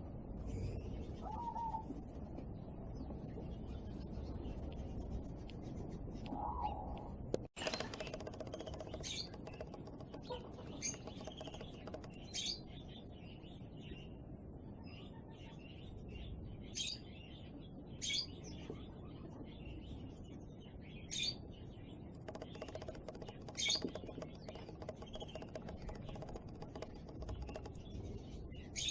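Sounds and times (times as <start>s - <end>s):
birds twittering: 0.4s - 1.9s, 2.6s - 14.2s, 14.8s - 28.9s
sharp bird chirps: 7.6s - 12.7s, 22.2s - 28.9s.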